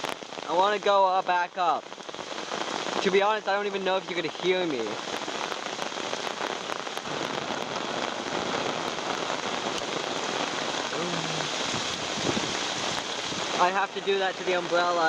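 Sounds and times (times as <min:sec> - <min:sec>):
heavy rain on an umbrella: 0:00.0 - 0:15.0.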